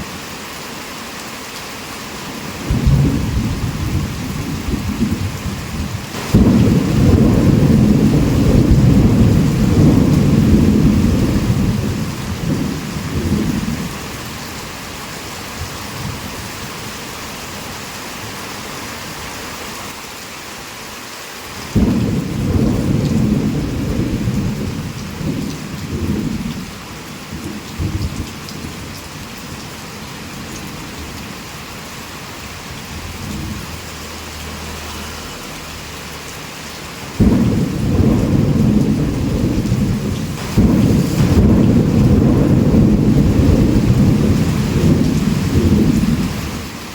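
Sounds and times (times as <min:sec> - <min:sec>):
heavy rain falling: 0:00.0 - 0:46.9
thunder rumbling: 0:02.6 - 0:14.2, 0:21.8 - 0:29.6, 0:37.1 - 0:46.8.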